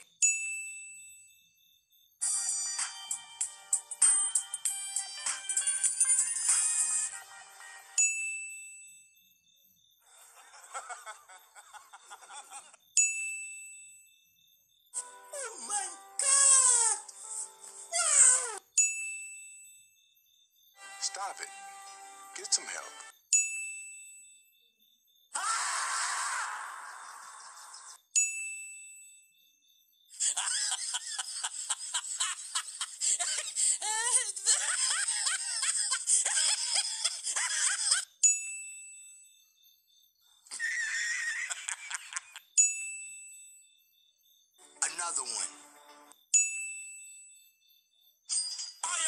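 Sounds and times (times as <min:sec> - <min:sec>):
man laughing: 0:10.1 - 0:12.8, 0:30.2 - 0:38.0, 0:40.5 - 0:42.4.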